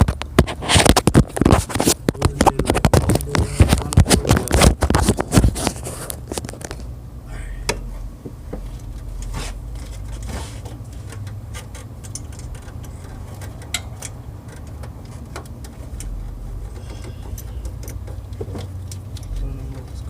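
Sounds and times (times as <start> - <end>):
steady low rumble: 0.0 - 20.0
socket ratchet clicking: 11.0 - 19.1
metal clinks: 16.8 - 18.1.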